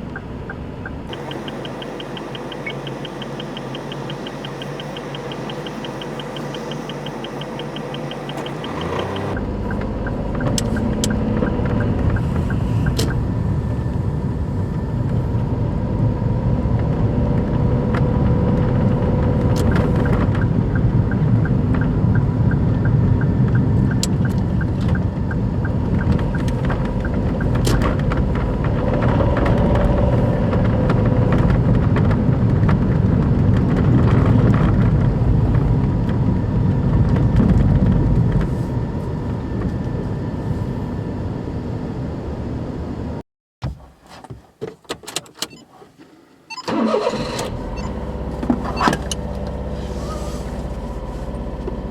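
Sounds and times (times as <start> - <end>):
light ticking: 0.0 - 13.2
car engine and road noise: 0.0 - 51.9
sharp clicks: 1.1 - 13.2.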